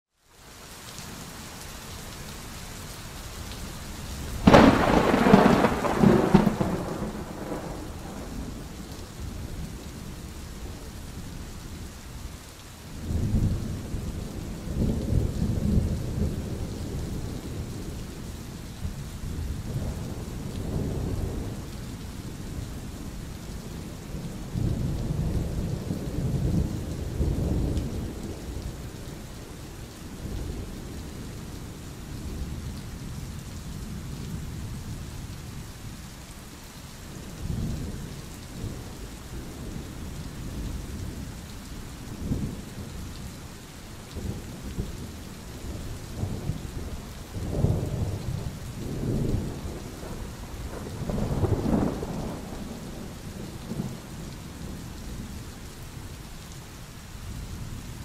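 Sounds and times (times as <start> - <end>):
steady rain falling: 0.1 - 58.0
rolling thunder: 4.4 - 10.9, 45.6 - 55.3.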